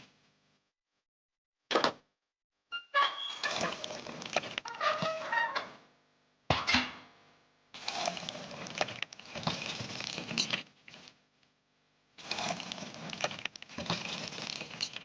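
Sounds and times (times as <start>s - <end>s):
crinkling and rustling handling: 3.4s - 5.3s, 7.8s - 11.4s, 12.2s - 15.0s.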